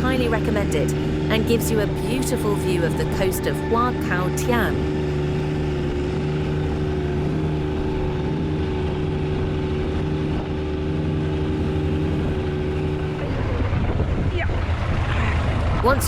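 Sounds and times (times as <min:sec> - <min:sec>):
boat engine droning: 0:00.0 - 0:16.0
water noise: 0:00.0 - 0:16.0
wind noise: 0:11.6 - 0:16.0.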